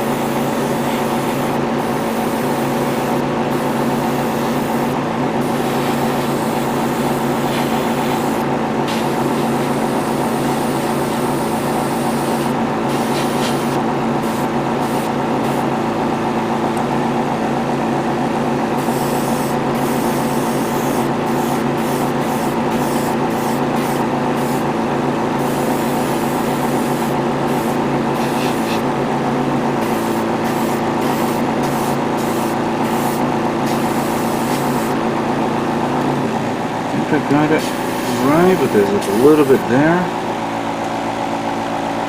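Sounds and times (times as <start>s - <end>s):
compressor humming: 0.0s - 42.0s
airbrush spraying hiss: 0.2s - 10.9s, 11.9s - 15.6s, 18.8s - 24.6s, 25.4s - 28.8s, 29.8s - 35.0s.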